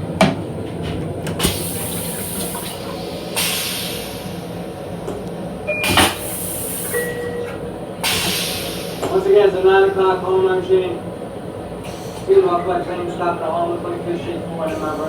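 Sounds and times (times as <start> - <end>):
low mechanical hum: 0.0 - 15.0
hissing rush of air: 1.4 - 4.8.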